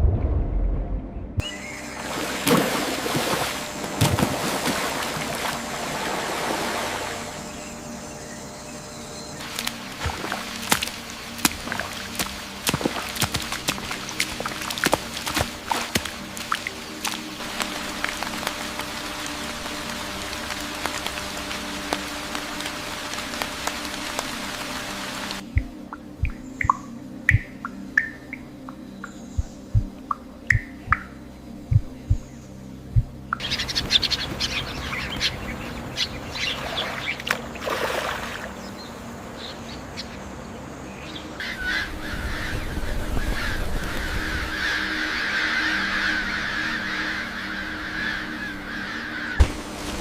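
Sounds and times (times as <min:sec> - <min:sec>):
low steady drone: 0:00.0 - 0:50.0
steady rain hiss: 0:01.6 - 0:37.6, 0:38.4 - 0:50.0
birds chirping and calling: 0:06.8 - 0:50.0
rain drop clicks: 0:09.4 - 0:28.8, 0:29.8 - 0:31.1
repeated squawking calls: 0:41.4 - 0:49.5.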